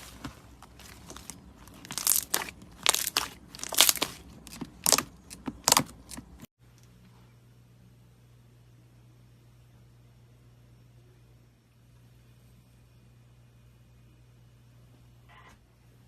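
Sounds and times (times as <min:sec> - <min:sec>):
faint low hum: 0:00.0 - 0:16.0
slime crackling in hands: 0:00.7 - 0:05.9.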